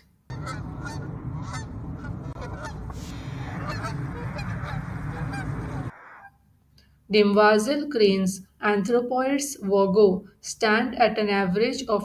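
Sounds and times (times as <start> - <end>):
cranes honking: 0.3 - 6.4.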